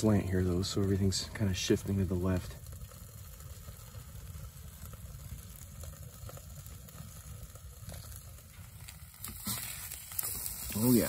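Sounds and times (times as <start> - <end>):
food sizzling in skillet: 0.0 - 11.0.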